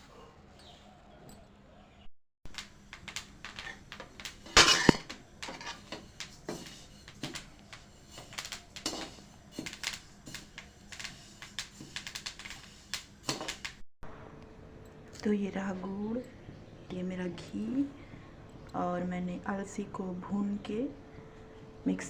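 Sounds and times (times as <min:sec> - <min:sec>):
utensils and dishes clicking: 0:02.5 - 0:13.8
dishes clattering: 0:03.1 - 0:12.0.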